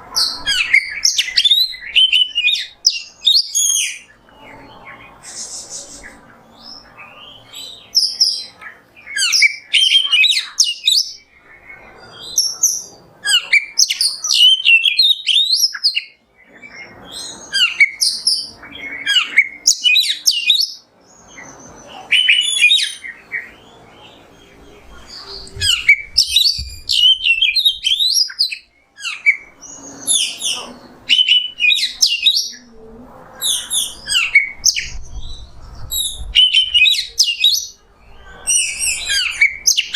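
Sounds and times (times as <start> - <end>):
bird singing whistled phrases: 0.2 - 6.2, 12.1 - 16.2, 16.8 - 20.8, 21.4 - 23.6, 25.1 - 32.7, 33.4 - 39.9.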